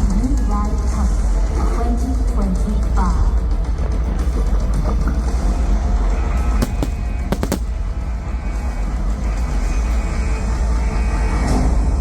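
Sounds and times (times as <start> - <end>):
firework bangs: 6.6 - 8.0.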